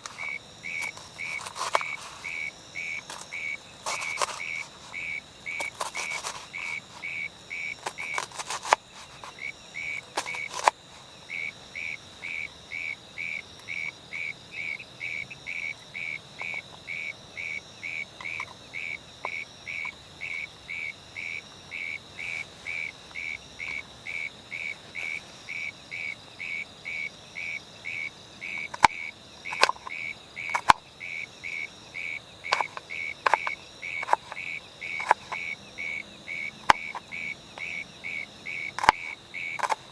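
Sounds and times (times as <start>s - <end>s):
continuous high insect trill: 0.0s - 39.9s
insects chirping: 0.0s - 39.9s
sharp clicks: 10.0s - 10.8s.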